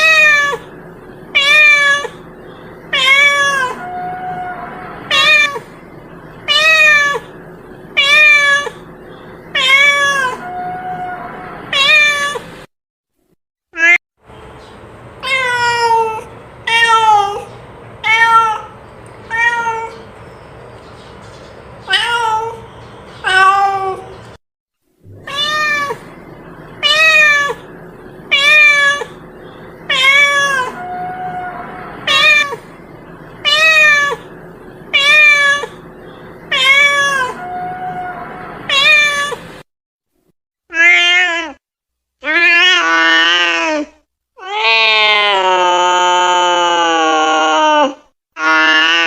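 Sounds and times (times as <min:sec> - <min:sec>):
cat meowing: 0:00.0 - 0:00.7, 0:01.4 - 0:02.2, 0:02.9 - 0:05.7, 0:06.5 - 0:07.3, 0:08.0 - 0:08.9, 0:09.5 - 0:12.5, 0:15.2 - 0:20.0, 0:21.9 - 0:24.1, 0:25.1 - 0:26.1, 0:26.8 - 0:27.6, 0:28.3 - 0:29.2, 0:29.9 - 0:32.6, 0:33.4 - 0:34.3, 0:34.9 - 0:35.8, 0:36.5 - 0:39.4, 0:40.7 - 0:41.6.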